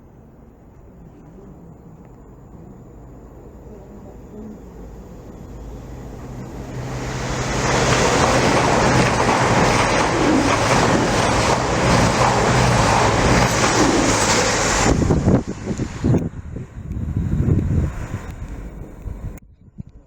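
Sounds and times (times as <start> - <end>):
low hum: 0.0 - 20.0
train wheels rushing on rails: 4.4 - 19.2.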